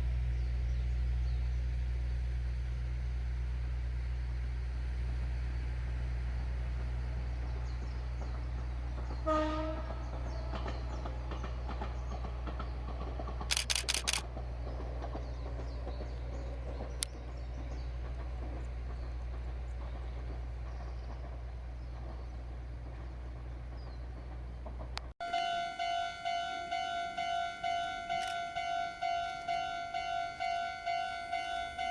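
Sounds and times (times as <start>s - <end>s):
electric train passing: 4.1s - 31.9s
faint rail clatter: 7.1s - 31.9s
train horn blast: 9.1s - 11.0s, 25.2s - 31.9s
camera shutter clicks: 13.5s - 14.2s.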